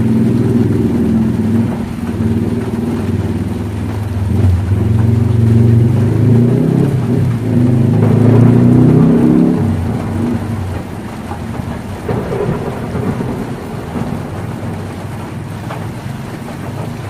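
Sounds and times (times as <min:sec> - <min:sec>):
deep rumble: 0:00.0 - 0:17.0
heavy rain on a tin roof: 0:00.0 - 0:17.0.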